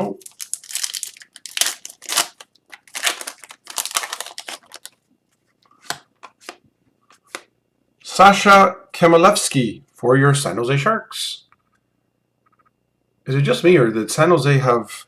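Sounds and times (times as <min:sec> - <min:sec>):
paper and plastic rustling: 0:00.0 - 0:06.6.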